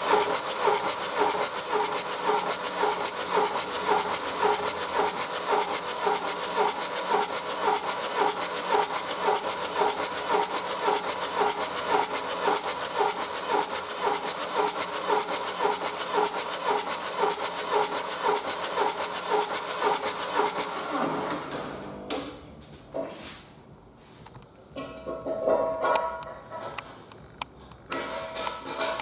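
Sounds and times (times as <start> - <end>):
diesel engine cranking on starter: 0.0 - 21.9.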